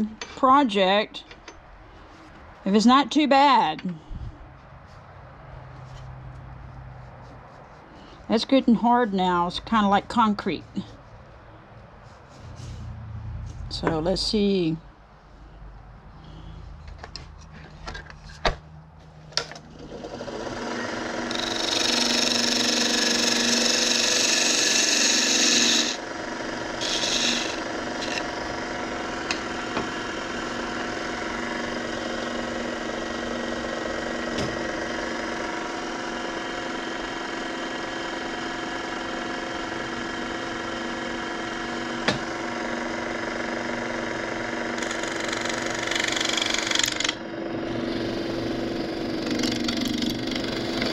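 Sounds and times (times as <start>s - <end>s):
wood lathe running: 19.7s - 50.9s
turning tool scraping wood: 20.4s - 26.0s, 26.6s - 47.2s, 47.8s - 50.9s.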